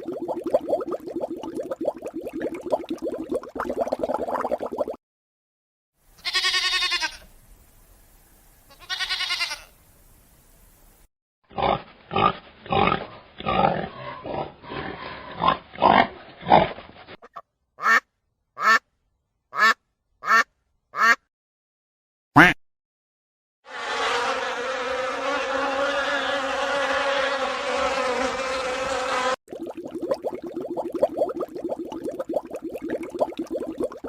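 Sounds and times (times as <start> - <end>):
animal bleating: 6.2 - 7.3, 8.7 - 9.7.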